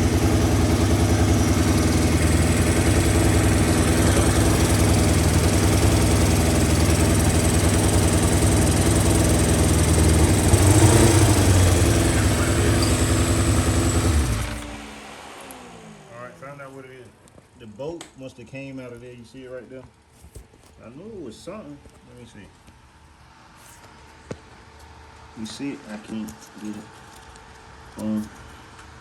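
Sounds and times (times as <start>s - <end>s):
motorcycle engine idling: 0.0s - 15.1s.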